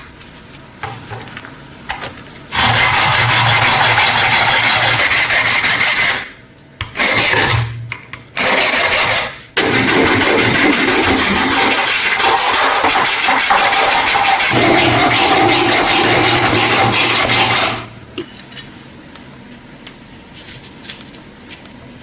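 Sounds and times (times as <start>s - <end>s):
power tool abrading metal: 2.6s - 5.1s, 9.6s - 17.9s.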